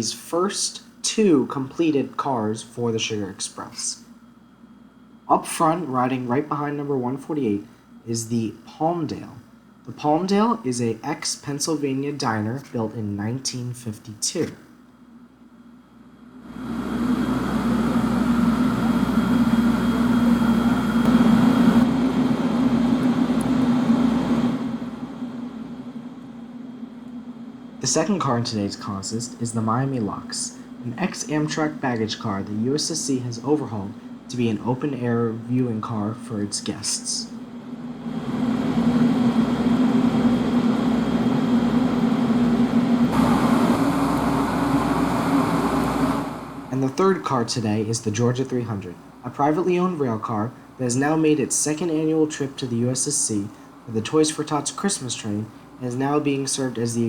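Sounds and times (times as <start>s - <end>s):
machine humming: 0.0s - 14.2s, 14.8s - 57.0s
wash of noise: 16.4s - 48.2s
loud hiss: 16.5s - 25.8s, 27.7s - 57.0s
vehicle engine humming: 16.5s - 26.6s, 37.8s - 46.7s.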